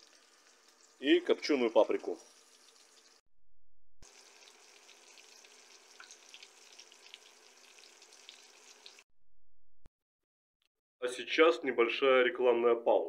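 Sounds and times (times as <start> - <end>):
food frying in hot oil: 0.0 - 3.2, 4.0 - 9.0.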